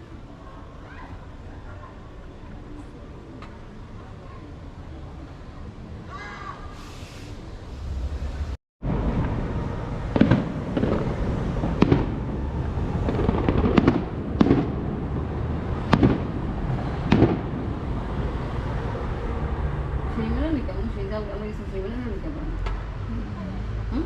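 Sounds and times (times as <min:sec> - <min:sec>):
low rumble: 0:07.2 - 0:24.0
fireworks bangs: 0:07.9 - 0:18.5.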